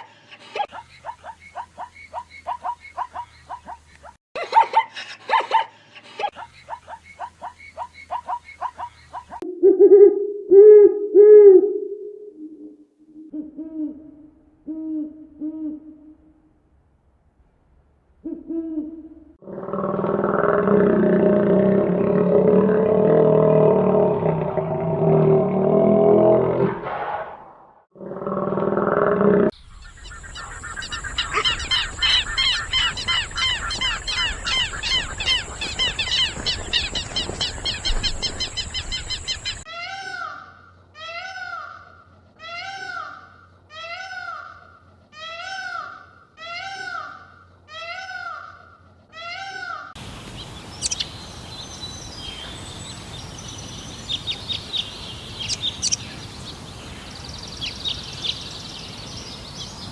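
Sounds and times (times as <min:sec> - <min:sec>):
rising and falling animal calls: 0:06.7 - 0:16.2, 0:18.2 - 0:59.9
dense rapid chirping: 0:50.0 - 0:59.9
sharp chirps: 0:50.0 - 0:59.9
steady high hiss: 0:50.0 - 0:59.9.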